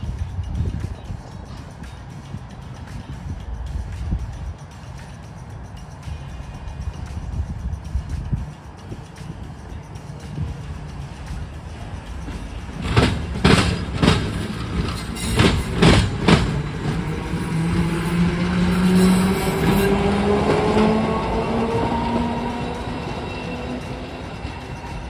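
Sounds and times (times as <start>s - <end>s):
train wheels clunking over crossing: 8.1s - 25.0s
low hum rising in pitch: 16.8s - 24.8s.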